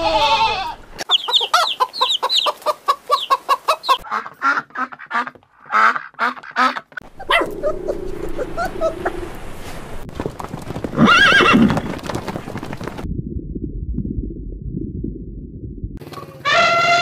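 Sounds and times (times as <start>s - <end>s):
goat bleating: 0.0s - 0.8s.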